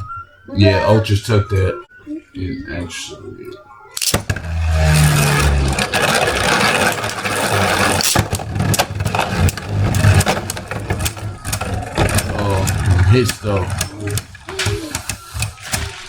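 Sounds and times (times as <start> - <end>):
spinning tops whirring and grinding: 4.0 - 16.0.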